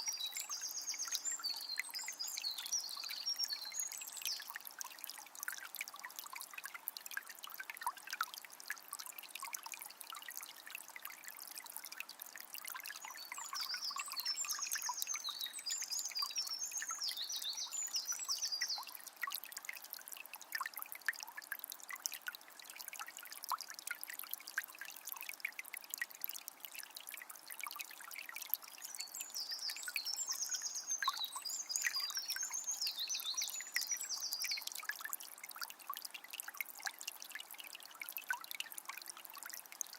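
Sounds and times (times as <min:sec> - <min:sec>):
songbird singing: 0:00.0 - 0:04.6, 0:13.0 - 0:19.0, 0:28.8 - 0:34.7
spring water trickling: 0:00.0 - 0:39.9.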